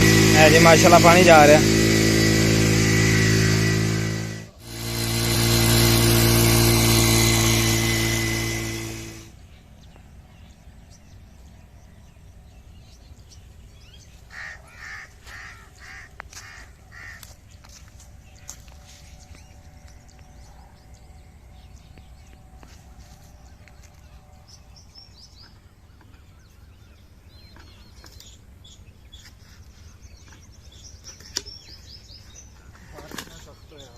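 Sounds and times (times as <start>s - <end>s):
small engine running pump: 0.0s - 9.8s, 14.8s - 24.6s
bird chirps: 9.4s - 33.9s.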